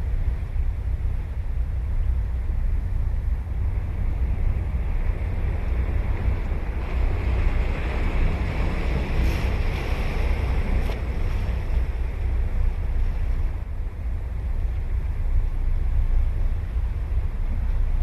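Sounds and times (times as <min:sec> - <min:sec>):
wind rumble on microphone: 0:00.0 - 0:18.0
ocean surf breaking on beach: 0:03.6 - 0:15.0.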